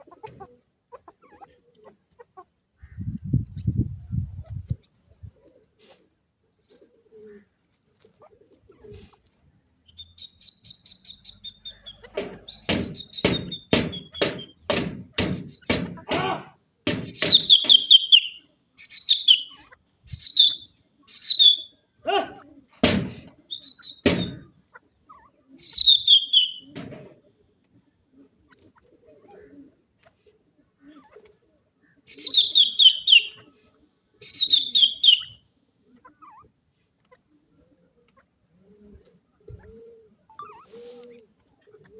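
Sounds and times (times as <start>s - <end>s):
francolin calling: 17.1s - 19.6s.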